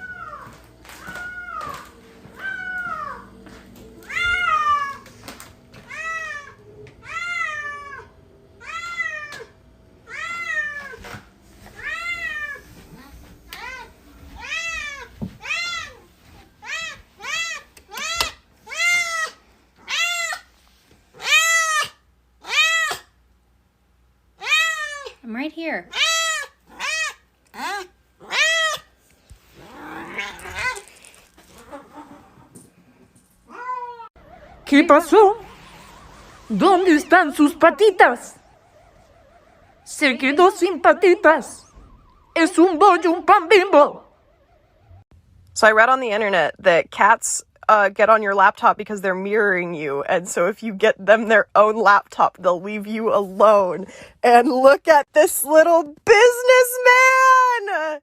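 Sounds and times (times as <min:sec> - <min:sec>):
cat meowing: 0:00.0 - 0:03.3, 0:04.0 - 0:05.2, 0:05.8 - 0:09.5, 0:10.1 - 0:20.5, 0:25.9 - 0:28.9, 0:29.6 - 0:32.5, 0:33.5 - 0:34.5.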